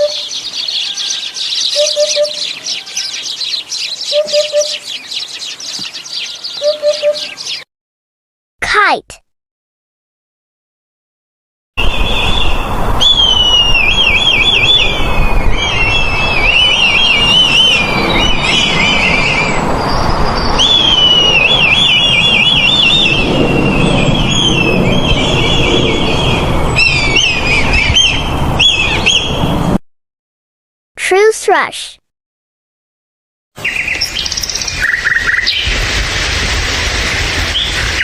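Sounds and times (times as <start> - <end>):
kite whistled calls: 0.0 - 5.9, 6.5 - 7.6, 11.8 - 19.6, 20.5 - 29.6, 33.7 - 35.8.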